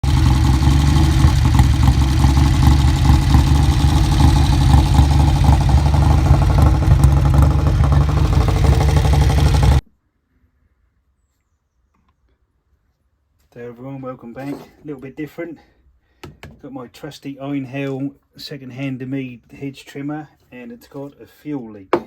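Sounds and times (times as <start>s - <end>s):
hedge trimmer engine running: 0.0s - 9.8s.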